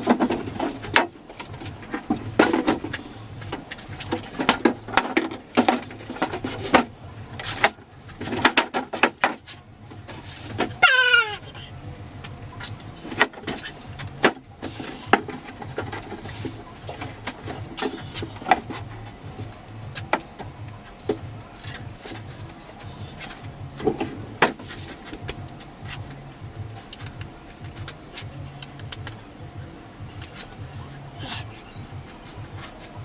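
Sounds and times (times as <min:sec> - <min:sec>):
low steady hum: 0:09.4 - 0:33.0.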